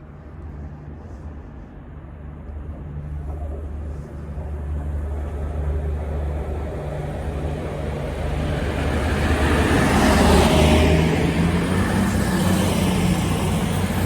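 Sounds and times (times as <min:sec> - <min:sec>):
train approaching rumble: 0:00.0 - 0:14.0.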